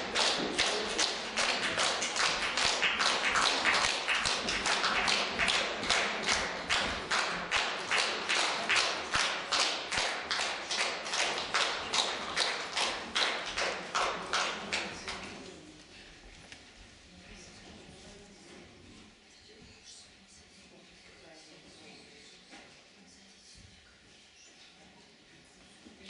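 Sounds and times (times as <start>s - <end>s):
audience clapping in unison: 0.0s - 15.4s.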